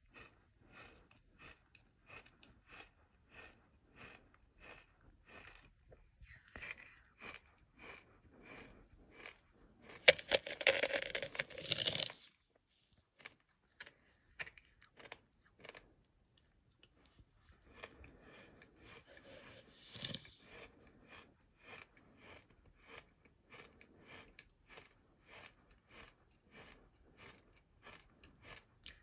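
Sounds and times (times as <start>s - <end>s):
gritty sand chewing crunches: 6.6s - 16.0s
dense gritty scraping: 10.0s - 12.9s.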